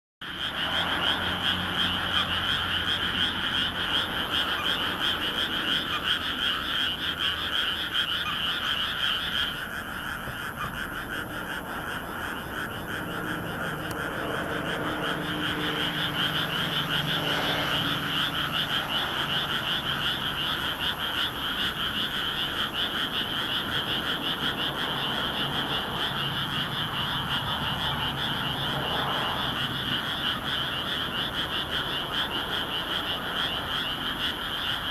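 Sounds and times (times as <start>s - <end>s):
chorus of frogs croaking: 0.2s - 34.9s.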